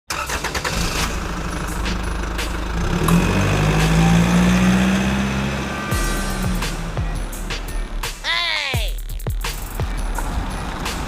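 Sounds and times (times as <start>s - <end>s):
engine humming: 0.1s - 8.2s, 9.0s - 11.0s.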